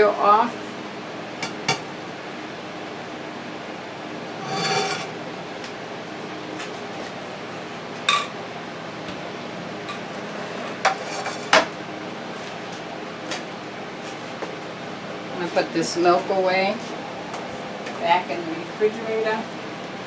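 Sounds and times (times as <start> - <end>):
frying pan and utensils clinking: 4.4 - 5.2.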